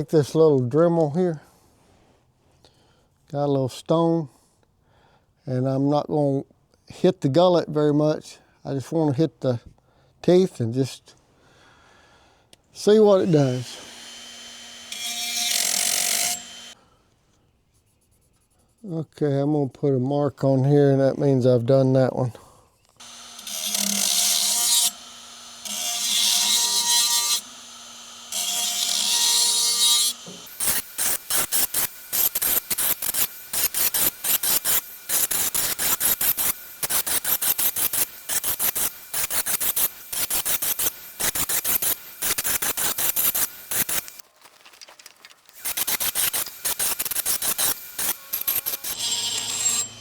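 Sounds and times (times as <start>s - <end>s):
rotary tool grinding metal: 12.8s - 16.8s, 22.9s - 44.2s, 45.5s - 50.0s.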